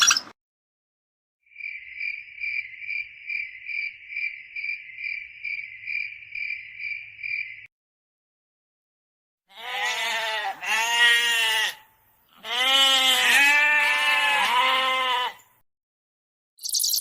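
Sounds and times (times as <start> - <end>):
insect trilling: 16.6 - 17.0.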